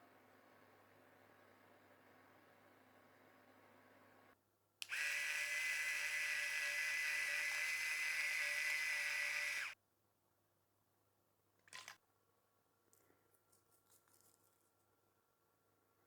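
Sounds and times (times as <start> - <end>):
electric grinder whining: 4.9 - 9.8.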